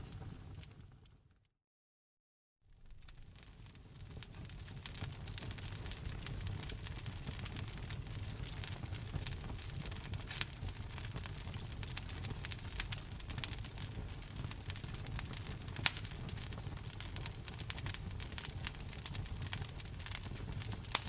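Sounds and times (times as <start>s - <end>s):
wood fire crackling: 0.0s - 1.2s, 2.7s - 21.0s.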